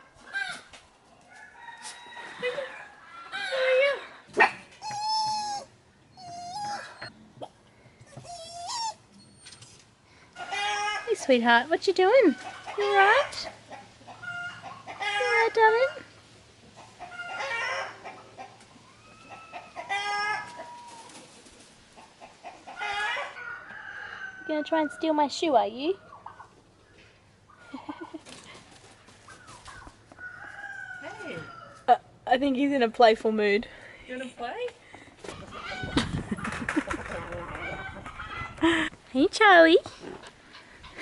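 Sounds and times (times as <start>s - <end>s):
farm animals calling: 2.2s - 9.3s, 10.3s - 21.2s, 21.8s - 25.2s, 25.9s - 32.0s
chickens clucking: 10.3s - 24.2s, 25.9s - 31.8s, 34.9s - 39.0s, 39.9s - 41.0s.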